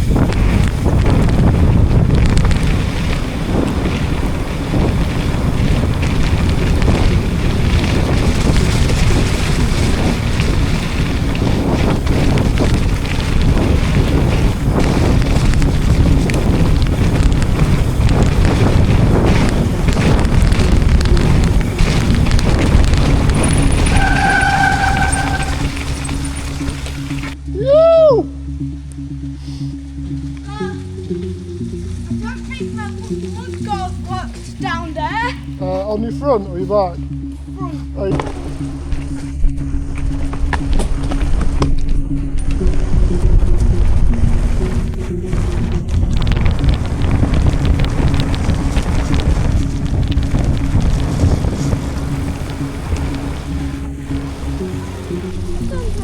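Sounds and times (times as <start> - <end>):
bike knocking on rough ground: 0.0 - 27.4, 38.1 - 54.5
wind buffeting microphone: 0.0 - 27.7, 28.5 - 56.0
rumble of bike tyres: 0.0 - 56.0
steady tone: 37.0 - 56.0.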